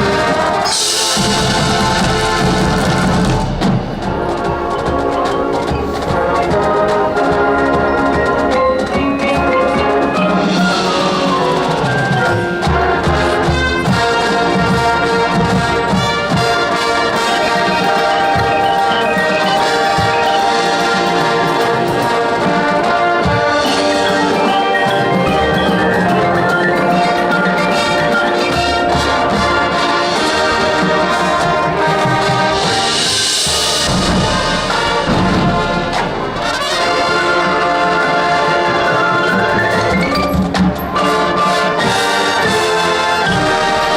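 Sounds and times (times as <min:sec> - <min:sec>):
brass chords: 0:00.0 - 0:43.9
drums: 0:00.0 - 0:43.9
marching band playing: 0:00.0 - 0:43.9
cymbal crashes: 0:32.5 - 0:37.8.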